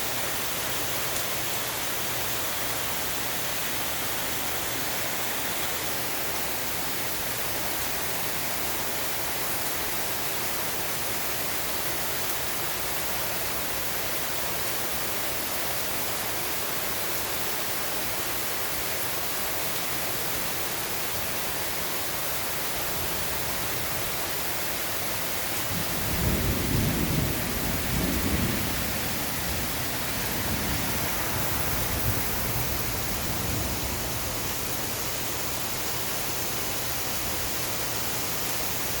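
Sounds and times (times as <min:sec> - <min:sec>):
rain hissing: 0:00.0 - 0:39.0
low roll of thunder: 0:25.6 - 0:34.6.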